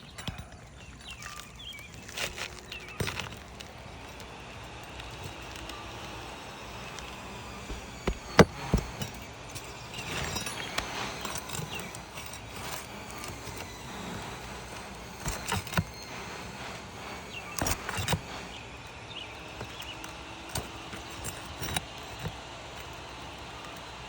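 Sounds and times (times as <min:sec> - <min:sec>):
tool scraping on shingles: 0:00.2 - 0:24.0
hand tool knocking on shingles: 0:07.0 - 0:12.6.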